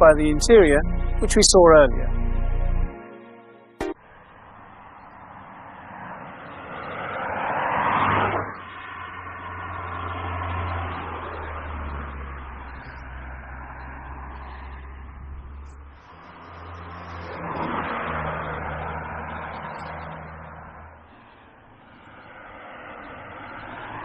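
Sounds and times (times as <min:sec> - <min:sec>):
low engine hum: 0:00.0 - 0:02.9, 0:08.8 - 0:24.0
tyre and engine noise: 0:04.1 - 0:24.0.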